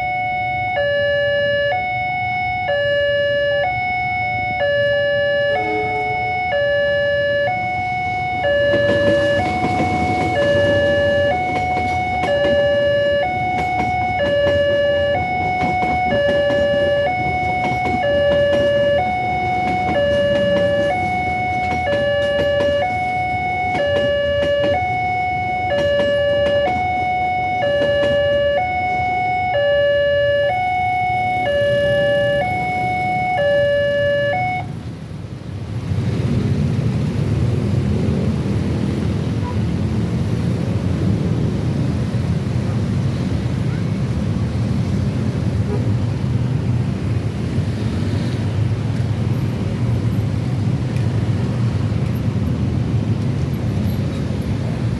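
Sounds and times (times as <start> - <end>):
level-crossing two-tone alarm: 0.0 - 34.7.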